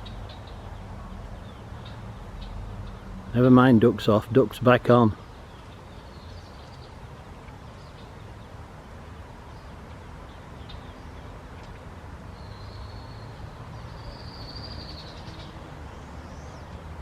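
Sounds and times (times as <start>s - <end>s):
faint bird chirps: 9.5s - 16.8s
whistled bird notes: 12.3s - 15.6s.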